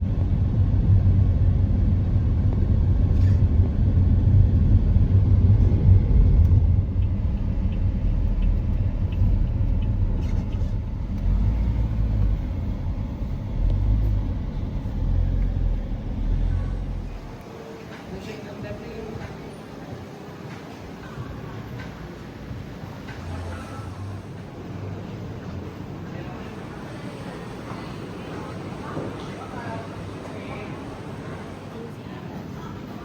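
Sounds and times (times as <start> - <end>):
car interior rumble: 0.0 - 17.4.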